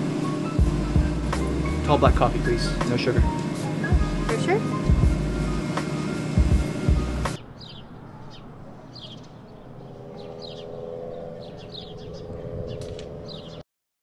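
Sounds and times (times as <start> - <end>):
faint outdoor ambience: 0.0 - 13.6
steady low hum: 0.0 - 13.6
bird chirping: 7.3 - 13.6.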